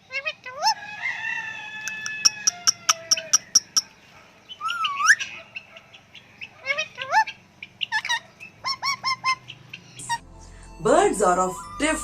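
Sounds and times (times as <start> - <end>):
bird chirps: 2.2 - 10.8.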